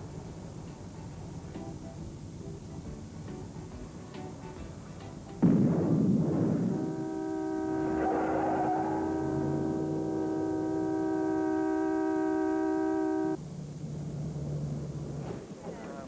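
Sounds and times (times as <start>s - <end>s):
horn sounding a chord: 5.4s - 13.4s.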